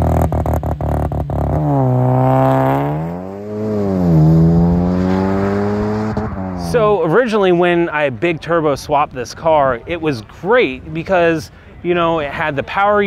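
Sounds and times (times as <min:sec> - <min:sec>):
car engine accelerating: 0:00.0 - 0:07.0.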